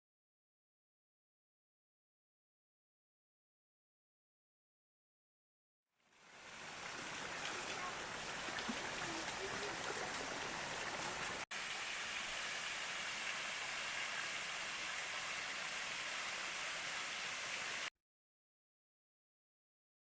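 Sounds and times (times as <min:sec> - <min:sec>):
flowing stream rushing: 0:06.1 - 0:17.9.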